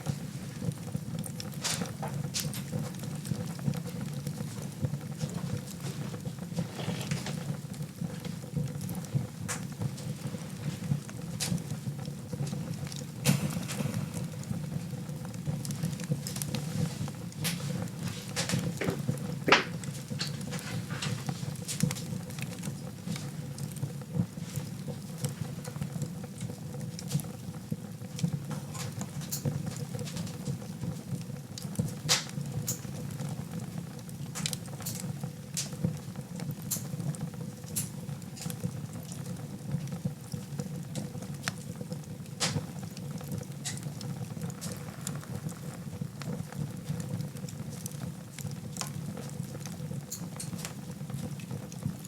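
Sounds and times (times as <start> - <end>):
low rumble of flames: 0.0 - 52.0
wood fire crackling: 0.0 - 52.0
sharp pops of fire: 13.2 - 14.9, 18.3 - 22.1, 42.4 - 42.7.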